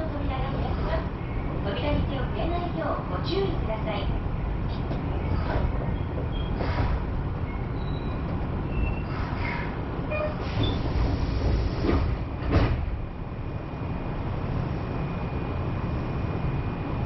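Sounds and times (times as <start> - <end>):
standing train hum: 0.0 - 17.0
train doors knocking shut: 10.1 - 13.0.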